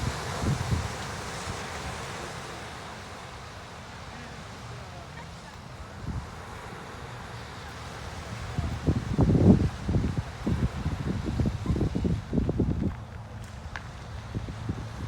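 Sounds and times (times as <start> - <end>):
wind buffeting microphone: 0.0 - 2.1, 8.2 - 15.0.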